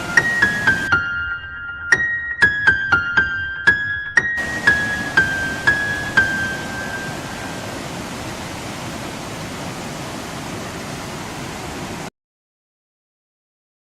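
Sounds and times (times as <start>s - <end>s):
river water rushing: 0.0s - 0.9s, 4.4s - 12.1s
piano note: 0.0s - 7.8s.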